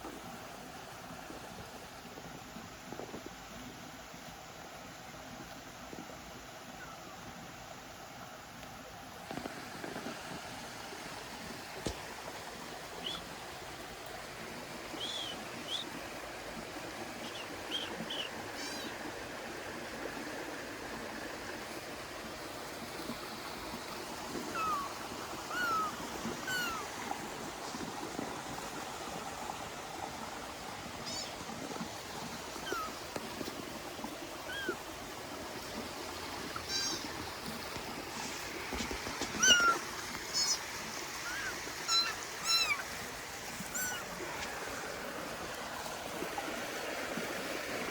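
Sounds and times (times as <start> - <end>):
stream rushing: 7.6 - 47.9
kitten mewing: 24.5 - 24.9, 25.5 - 26.8, 36.7 - 37.1, 39.4 - 39.8, 41.2 - 42.9, 43.7 - 44.0.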